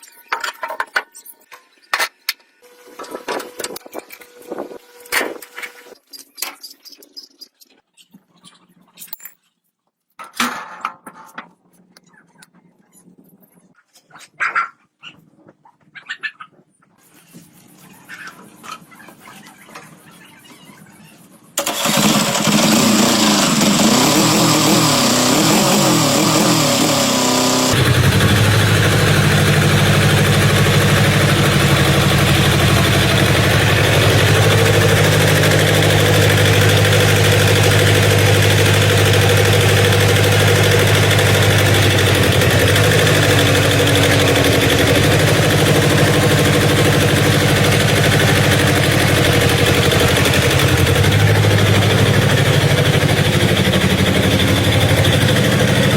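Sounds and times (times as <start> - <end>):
tractor engine idling: 21.6 - 55.9.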